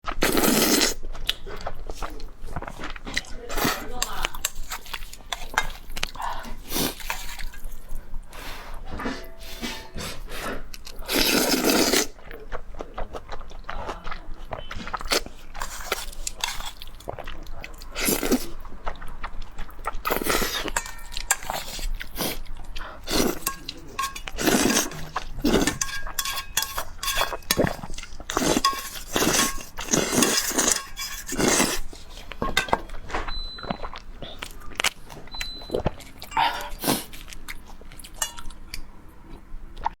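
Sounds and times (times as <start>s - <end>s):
food crunching: 0.0s - 40.0s
dishes clinking: 8.9s - 10.2s, 20.6s - 21.8s, 23.2s - 33.8s, 38.1s - 38.6s.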